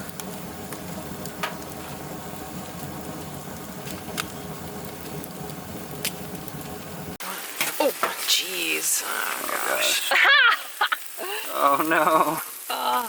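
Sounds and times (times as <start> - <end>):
food sizzling in a pan: 0.0 - 13.0
sharp pops: 2.8 - 6.8.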